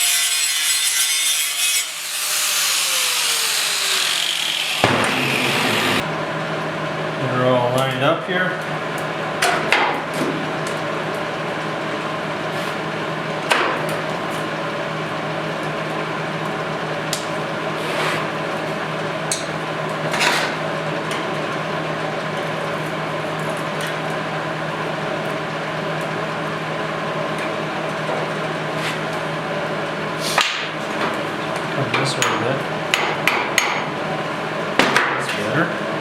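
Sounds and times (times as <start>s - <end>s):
machine hum: 2.0s - 7.7s.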